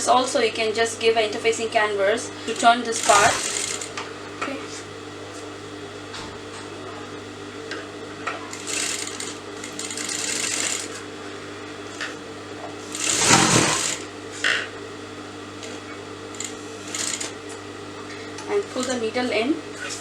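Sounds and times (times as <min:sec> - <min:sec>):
sewing machine running: 0:02.2 - 0:04.2, 0:08.3 - 0:11.1, 0:12.8 - 0:14.2, 0:15.6 - 0:17.6, 0:18.6 - 0:19.2.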